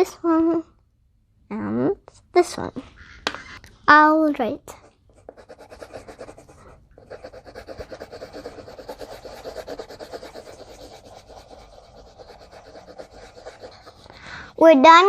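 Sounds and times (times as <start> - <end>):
coloring pen scratching paper: 5.2 - 14.3.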